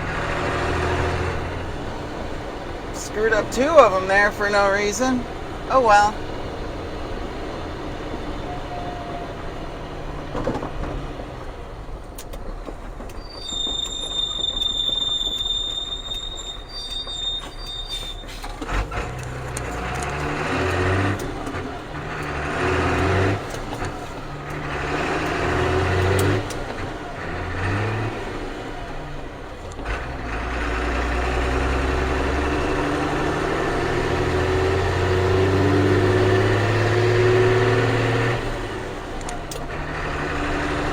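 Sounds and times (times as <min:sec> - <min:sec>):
diesel truck engine revving: 0:00.0 - 0:40.9
high steady squeal: 0:13.2 - 0:18.6.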